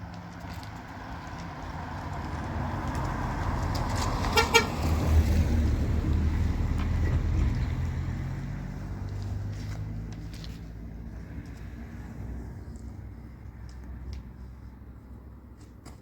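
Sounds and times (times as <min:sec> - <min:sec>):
vehicle engine rumble passing: 0:00.0 - 0:15.1
short horn toots: 0:04.4 - 0:04.7.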